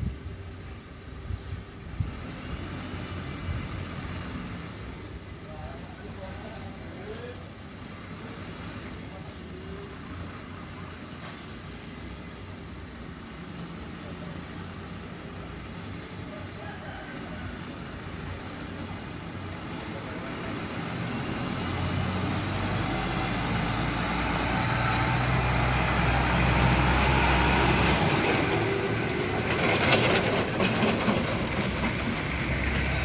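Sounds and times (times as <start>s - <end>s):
truck diesel engine running: 7.4s - 33.0s.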